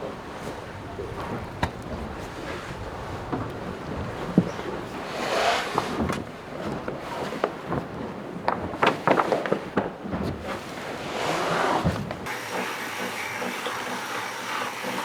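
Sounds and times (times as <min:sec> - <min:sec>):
wind: 0:00.0 - 0:15.0
water noise: 0:10.6 - 0:15.0.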